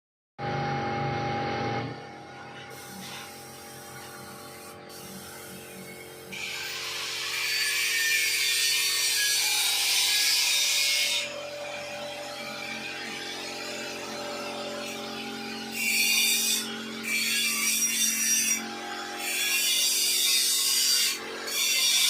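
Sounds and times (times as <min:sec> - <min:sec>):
paint spray gun hissing: 0:02.7 - 0:06.2.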